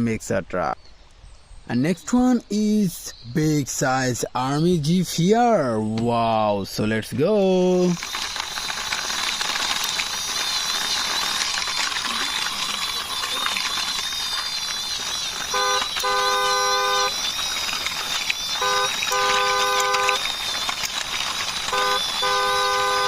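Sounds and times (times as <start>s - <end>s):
toy vehicle rolling: 7.4s - 23.0s
toy horn beeping: 7.8s - 23.0s.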